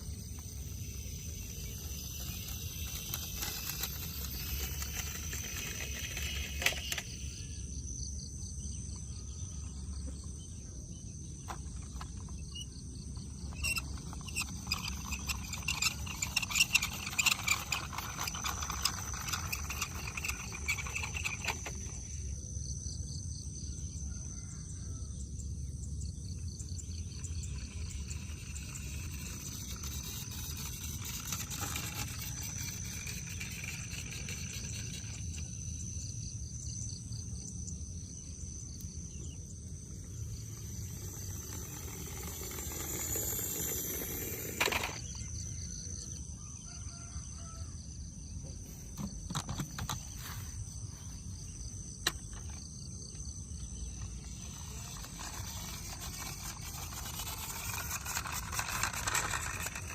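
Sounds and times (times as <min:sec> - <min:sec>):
high-pitched whine: 0:00.0 - 0:22.7, 0:26.2 - 0:47.7.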